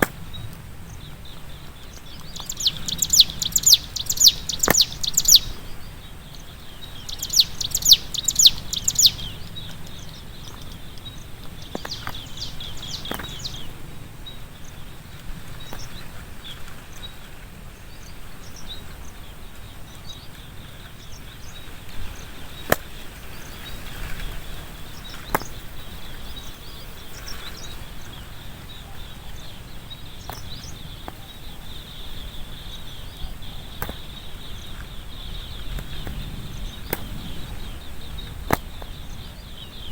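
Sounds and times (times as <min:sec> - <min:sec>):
small bird chirping: 0:00.3 - 0:16.2, 0:17.9 - 0:39.9
sharp clicks: 0:02.1 - 0:05.6.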